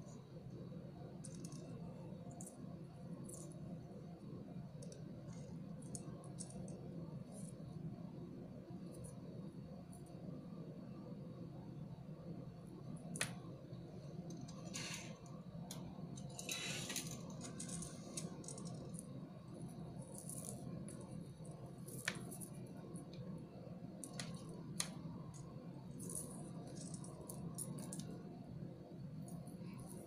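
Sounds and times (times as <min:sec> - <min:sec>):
low background hum: 0:00.0 - 0:30.0
beads and tools clicking: 0:14.3 - 0:19.1, 0:24.0 - 0:28.3.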